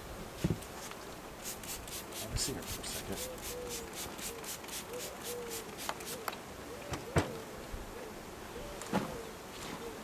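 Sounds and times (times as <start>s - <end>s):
scraping or brushing strokes: 0.4s - 6.2s.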